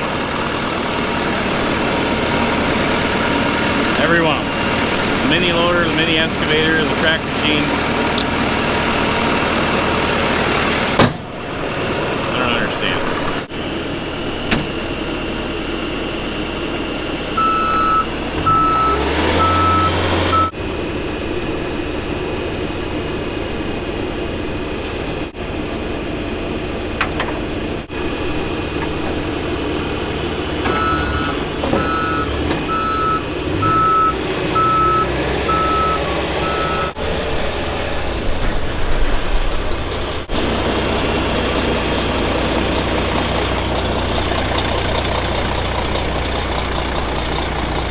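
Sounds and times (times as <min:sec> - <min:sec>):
diesel engine running: 0:00.0 - 0:47.9
reversing alarm beeping: 0:17.3 - 0:20.6, 0:30.7 - 0:37.0.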